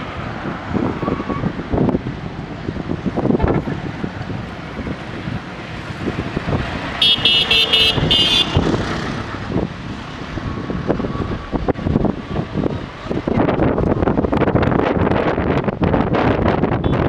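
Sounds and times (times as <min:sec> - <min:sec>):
wind on microphone: 0:00.0 - 0:17.0
high-pitched horn toots: 0:07.0 - 0:08.7.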